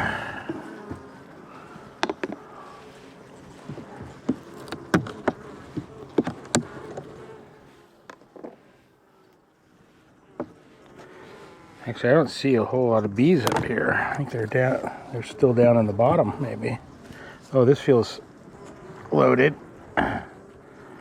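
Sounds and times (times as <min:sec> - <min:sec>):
bees buzzing: 0:00.0 - 0:21.0
hive tool clicks and knocks: 0:03.9 - 0:07.2, 0:13.4 - 0:13.7.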